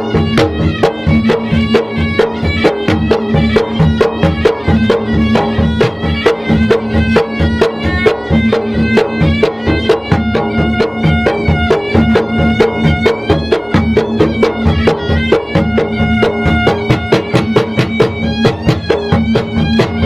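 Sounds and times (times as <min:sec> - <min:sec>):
drum ensemble playing: 0:00.0 - 0:20.0
reedy wind instrument melody: 0:00.0 - 0:20.0.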